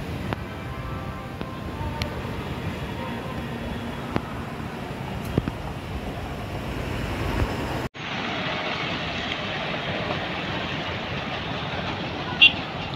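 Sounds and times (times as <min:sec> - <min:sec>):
electric train rumbling: 0:00.0 - 0:12.9
passing train rushing: 0:00.0 - 0:12.9.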